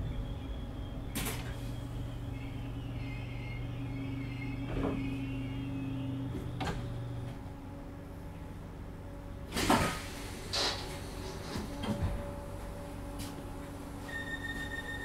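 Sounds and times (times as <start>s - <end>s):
faint wavering high squeal: 0.0s - 7.2s, 14.0s - 15.0s
train low hum: 0.0s - 15.0s.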